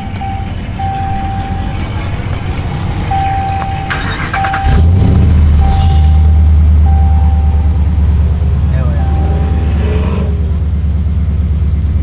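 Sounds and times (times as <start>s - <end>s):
dashboard warning chime dinging: 0.0s - 8.2s, 8.8s - 9.8s
truck engine deep idle: 0.0s - 12.0s.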